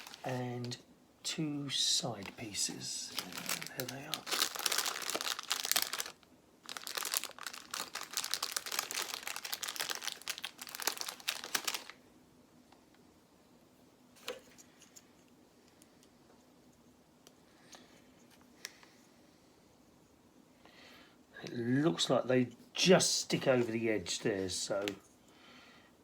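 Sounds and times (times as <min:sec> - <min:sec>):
plastic crinkling: 0:00.0 - 0:00.4, 0:02.2 - 0:12.0.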